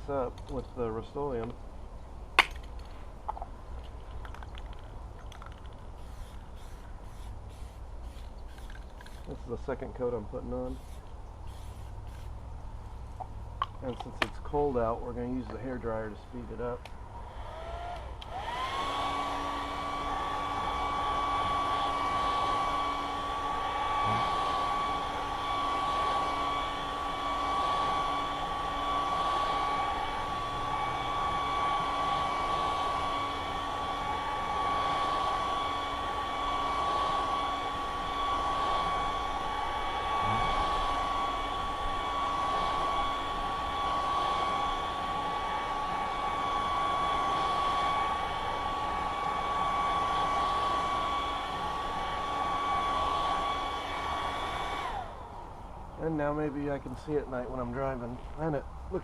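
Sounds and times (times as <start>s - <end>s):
rush of blowing air: 17.1s - 55.5s
hair dryer motor whine: 17.1s - 56.6s.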